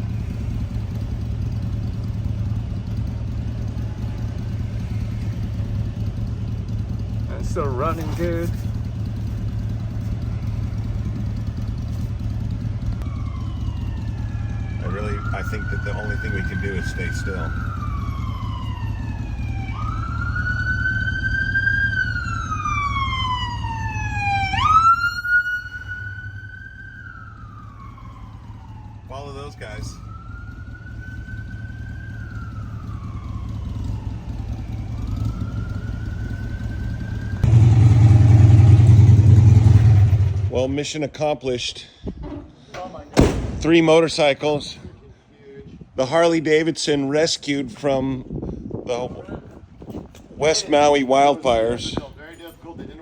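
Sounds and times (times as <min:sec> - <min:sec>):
emergency siren wailing: 0:00.0 - 0:40.7
vehicle engine drone: 0:00.0 - 0:41.2
road noise: 0:00.0 - 0:53.0
low rumble: 0:37.4 - 0:40.8.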